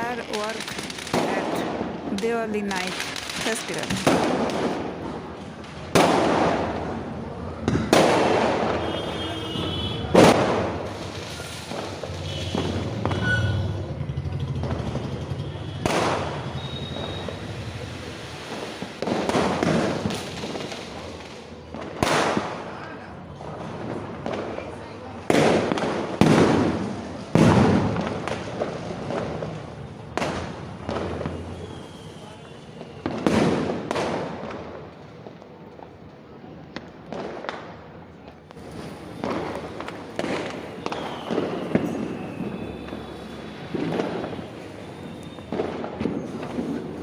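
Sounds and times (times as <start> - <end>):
fireworks bangs: 0.0 - 47.0
small firework pops: 0.2 - 13.8, 15.6 - 47.0.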